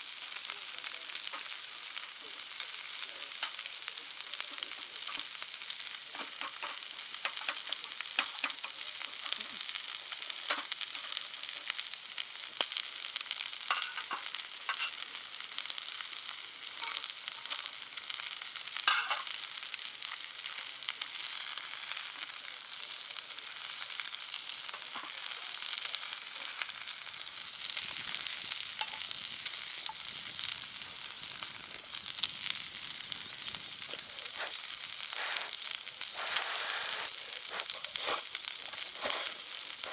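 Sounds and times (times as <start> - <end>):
meat sizzling on grill pan: 0.0 - 39.9
pops and crackles: 6.0 - 9.7, 10.4 - 11.2, 16.7 - 39.9.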